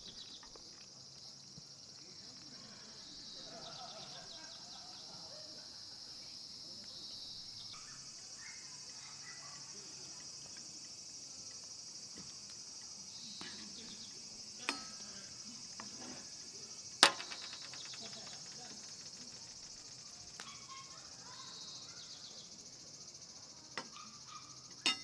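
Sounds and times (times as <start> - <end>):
insects chirping: 0.0 - 25.0
sharp click: 17.0 - 19.3.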